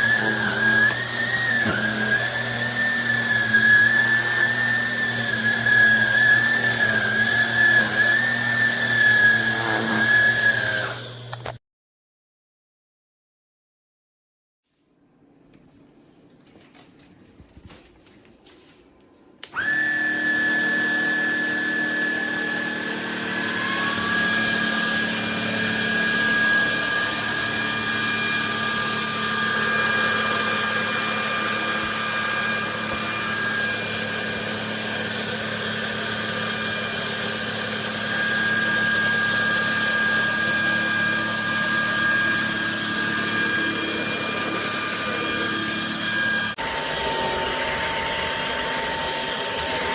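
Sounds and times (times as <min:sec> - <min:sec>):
vacuum cleaner motor whine: 0:00.0 - 0:11.6, 0:19.4 - 0:49.9.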